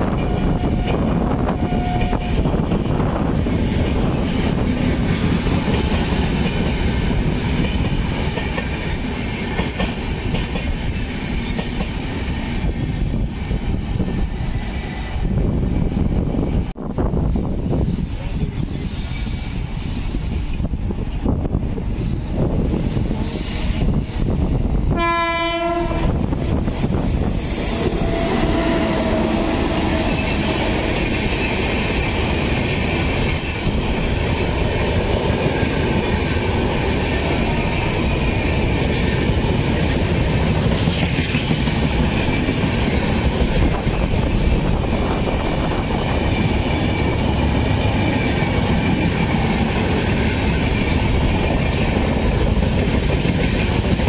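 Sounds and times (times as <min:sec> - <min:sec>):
clickety-clack over rail joints: 0:00.0 - 0:24.9, 0:25.6 - 0:54.0
train horn blast: 0:00.5 - 0:02.5, 0:24.9 - 0:26.3, 0:27.7 - 0:30.9.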